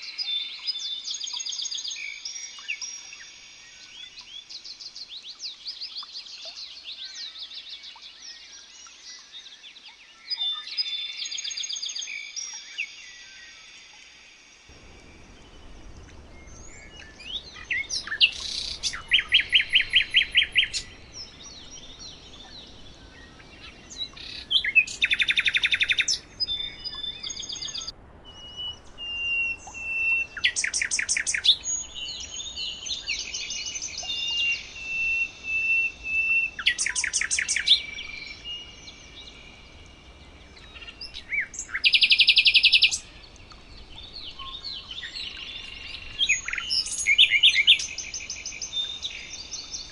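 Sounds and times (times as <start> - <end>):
bird chirps: 14.7 - 49.9.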